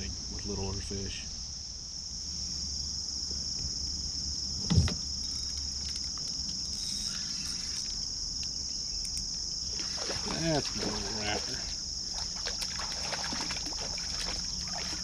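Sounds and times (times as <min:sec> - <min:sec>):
crickets chirping: 0:00.0 - 0:15.0
short thump: 0:04.6 - 0:05.0.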